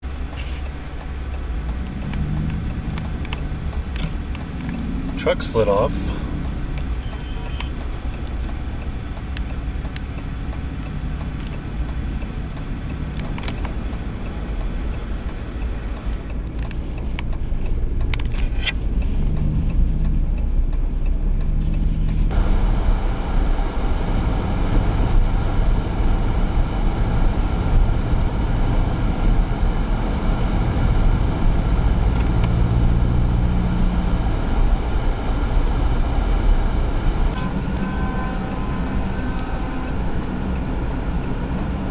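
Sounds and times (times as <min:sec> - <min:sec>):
vehicle engine rumbling: 0:00.0 - 0:41.9
blizzard wind: 0:21.8 - 0:41.9.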